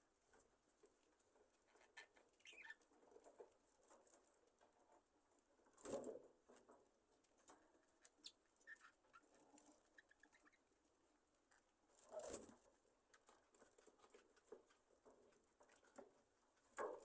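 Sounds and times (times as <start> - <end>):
small rustles and clicks: 0.0 - 17.0
soft bird chirps: 2.0 - 2.8, 8.0 - 10.7.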